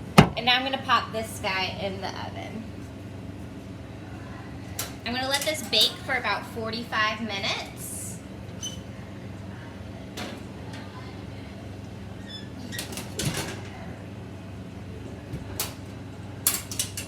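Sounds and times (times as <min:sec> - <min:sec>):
steady low hum: 0:00.0 - 0:12.7
sharp knocks: 0:00.1 - 0:00.4.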